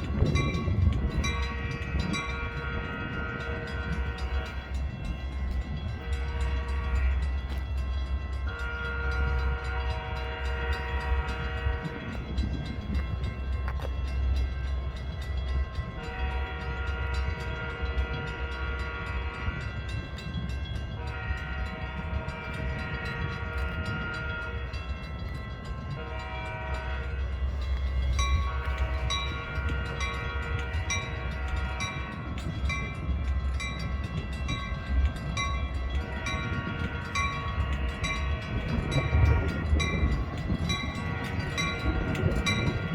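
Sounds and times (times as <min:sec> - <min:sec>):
train rumbling past: 0:00.0 - 0:42.9
train air horn blasts: 0:01.1 - 0:04.8, 0:05.9 - 0:07.6, 0:08.4 - 0:12.2, 0:16.0 - 0:20.2, 0:21.0 - 0:25.0, 0:25.8 - 0:33.0, 0:35.7 - 0:42.9.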